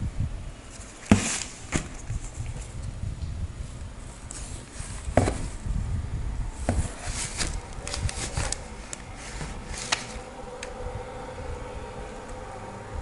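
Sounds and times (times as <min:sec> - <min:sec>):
faint steady hum: 0:00.0 - 0:13.0
crinkly rustling: 0:06.6 - 0:10.3.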